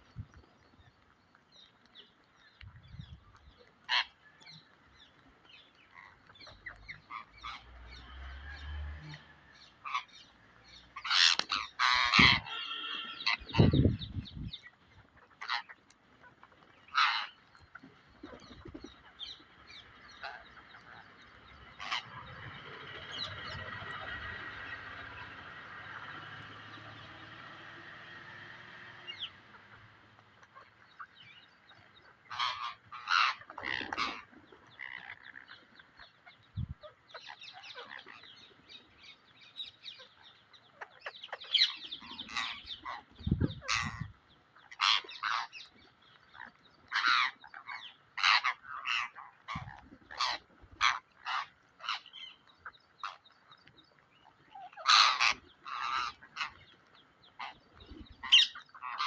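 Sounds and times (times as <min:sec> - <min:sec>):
parrot squawking: 0:11.0 - 0:13.9, 0:54.6 - 0:56.6, 0:58.2 - 0:59.0.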